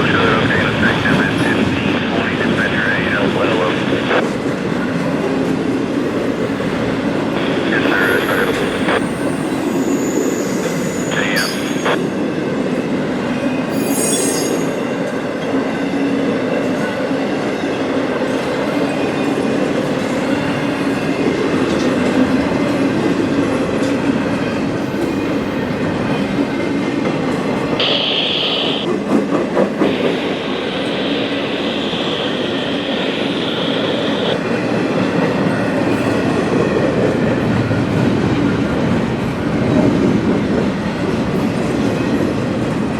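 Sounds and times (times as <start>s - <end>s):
freight train cars rumbling: 0.0s - 42.9s
high-pitched wheel squeal: 13.7s - 14.8s.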